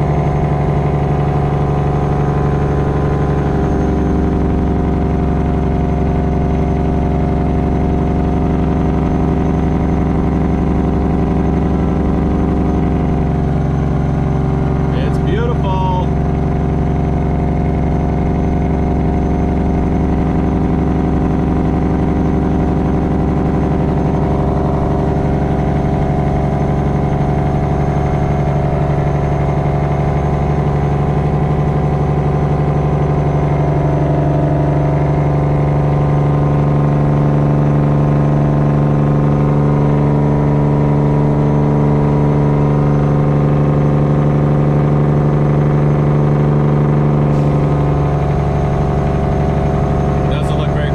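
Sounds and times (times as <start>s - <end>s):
diesel truck engine droning: 0.0s - 50.9s.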